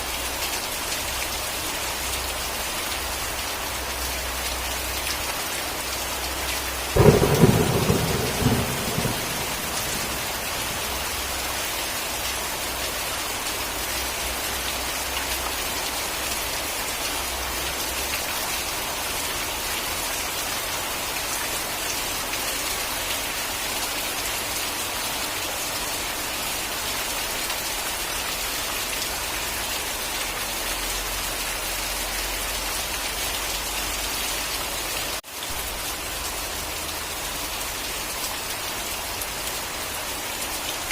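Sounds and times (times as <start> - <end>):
steady rain: 0.0 - 40.9
thunder clap rumbling: 7.0 - 11.4.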